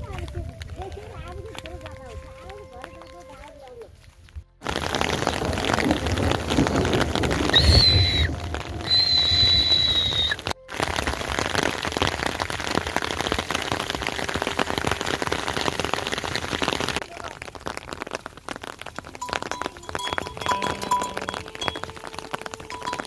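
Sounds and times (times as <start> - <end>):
rain falling on surfaces: 0.0 - 23.0
high steady tone: 19.2 - 23.0.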